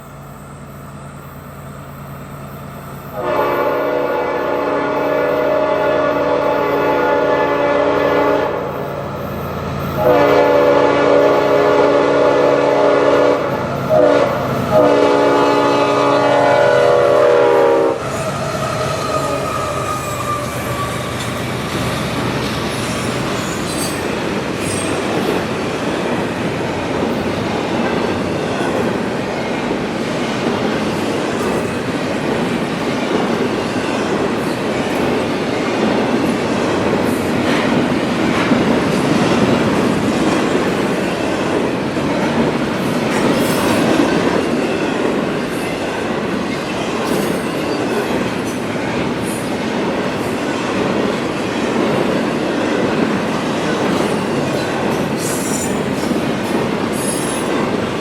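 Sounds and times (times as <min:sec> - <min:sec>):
train wheels clicking on rails: 0:00.0 - 0:58.0
locomotive air horn blasts: 0:03.1 - 0:08.8, 0:10.0 - 0:21.2.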